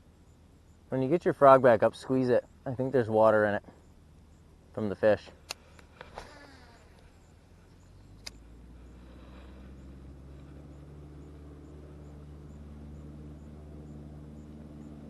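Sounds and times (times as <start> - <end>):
motor engine humming: 3.9 - 15.0
sharp click: 5.4 - 6.4, 8.2 - 8.4.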